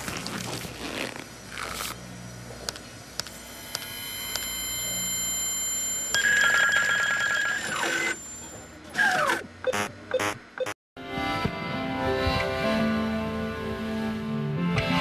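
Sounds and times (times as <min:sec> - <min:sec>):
high electronic fax tones: 0:03.4 - 0:10.8.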